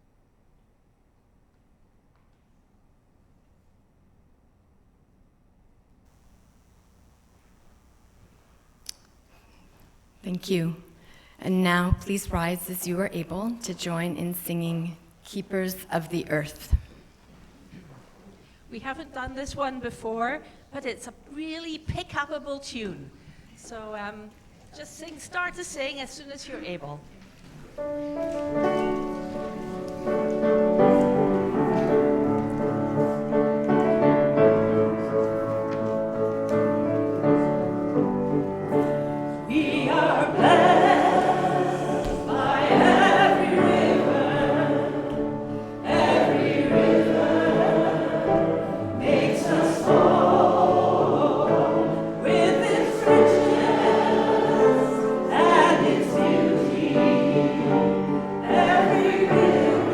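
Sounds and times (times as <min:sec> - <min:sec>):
congregation singing a hymn: 0:28.0 - 0:59.9.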